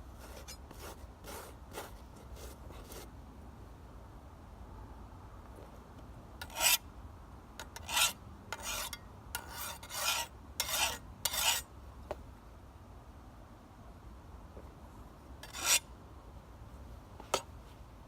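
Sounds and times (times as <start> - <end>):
file scraping steel blade: 0.2 - 3.1, 6.4 - 6.8, 7.6 - 11.7, 15.4 - 15.9.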